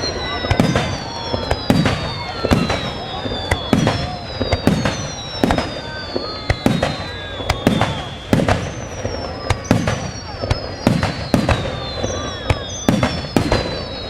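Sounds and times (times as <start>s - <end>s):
fireworks bangs: 0.0s - 14.0s
fireworks whistles dropping in pitch: 0.0s - 14.0s.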